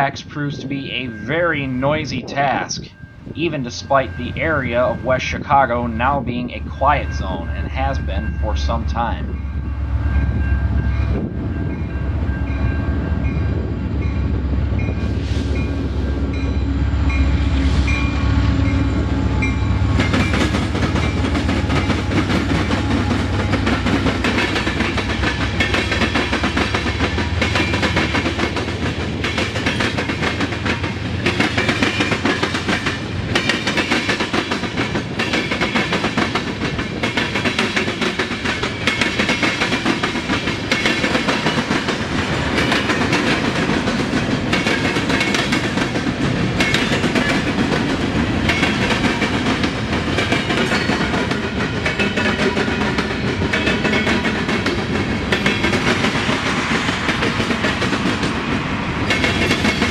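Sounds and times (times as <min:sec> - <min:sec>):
crossing bell ringing: 0:00.0 - 0:02.0, 0:02.8 - 0:28.2
diesel locomotive engine rumble: 0:00.0 - 0:59.9
train wheels clattering over crossing: 0:09.3 - 0:59.9.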